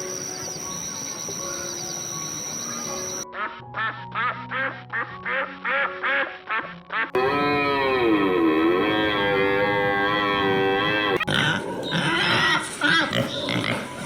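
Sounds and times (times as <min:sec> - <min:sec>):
thin high tone: 0:00.0 - 0:03.2
duck quacking: 0:03.4 - 0:07.5.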